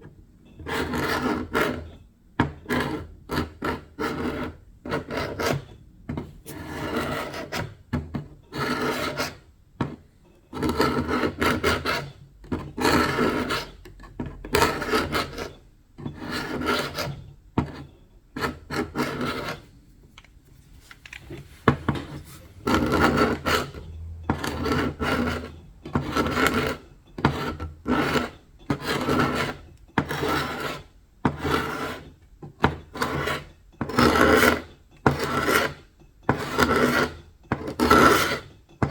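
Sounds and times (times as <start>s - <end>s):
abrasive tool rubbing painted wood: 21.3s - 32.0s.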